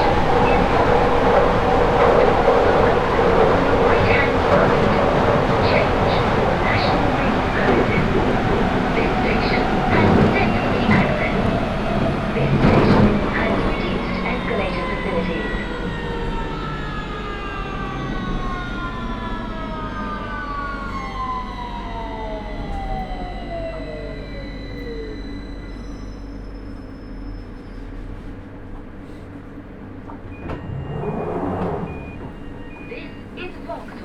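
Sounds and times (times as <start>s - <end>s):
train low running rumble: 0.0s - 34.0s
train traction motors whining: 0.0s - 34.0s.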